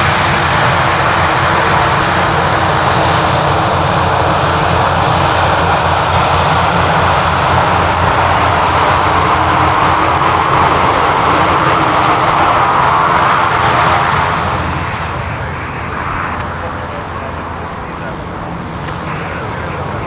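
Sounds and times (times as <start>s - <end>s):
aircraft engines passing: 0.0s - 20.0s.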